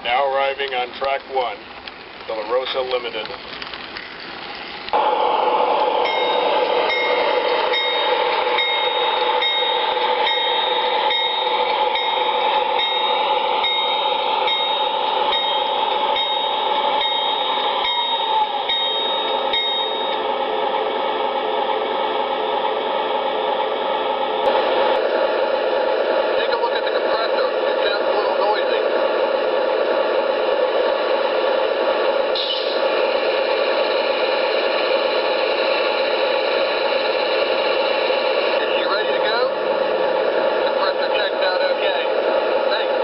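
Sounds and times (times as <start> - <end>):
train running: 0.0 - 43.0
locomotive bell ringing: 6.0 - 20.3.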